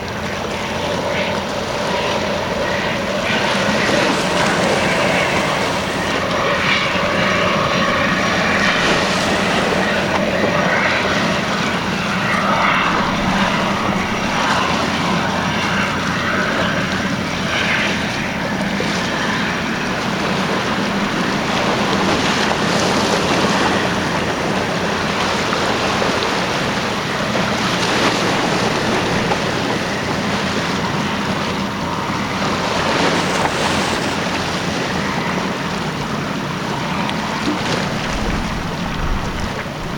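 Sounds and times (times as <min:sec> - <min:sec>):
ferry turbines and water jets: 0:00.0 - 0:39.9
water wash: 0:00.0 - 0:39.9
wind on microphone: 0:00.0 - 0:39.9
faint whine: 0:01.9 - 0:25.0, 0:36.8 - 0:39.9.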